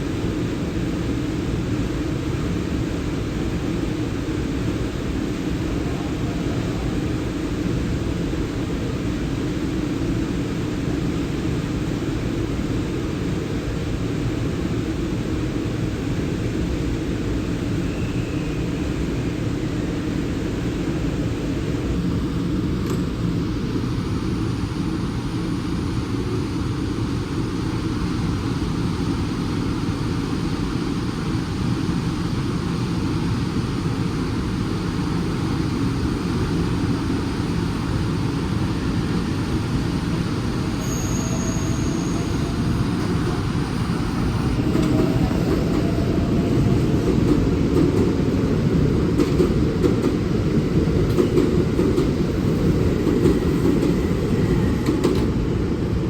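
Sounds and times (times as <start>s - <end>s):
electric train rumbling: 0.0s - 56.0s.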